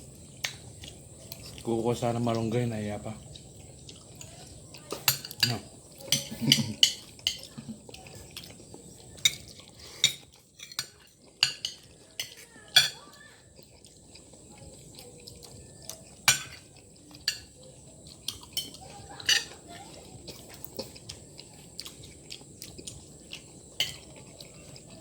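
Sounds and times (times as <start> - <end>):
utensils clinking against plate: 0.4 - 13.8, 14.5 - 25.0.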